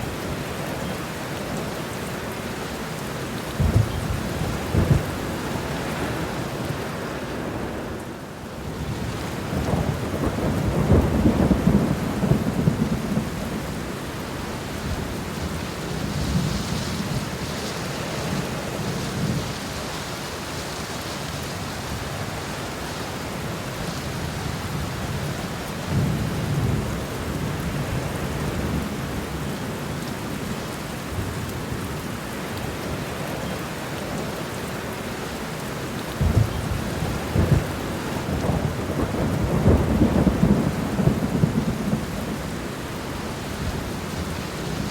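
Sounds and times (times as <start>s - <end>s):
steady rain: 0.0s - 44.9s
thunder rolling: 3.6s - 5.4s, 36.2s - 42.6s.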